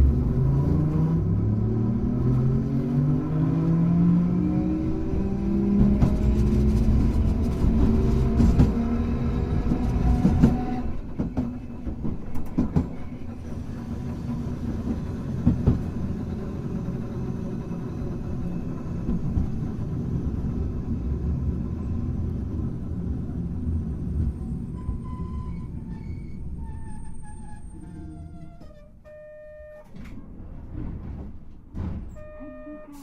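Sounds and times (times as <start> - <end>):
tram motor whine: 0.0 - 33.0
wheel-on-rail rumble: 4.2 - 28.8.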